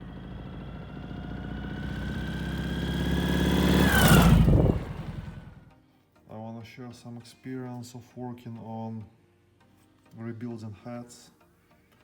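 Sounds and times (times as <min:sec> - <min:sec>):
motorcycle driving past: 0:00.0 - 0:05.8.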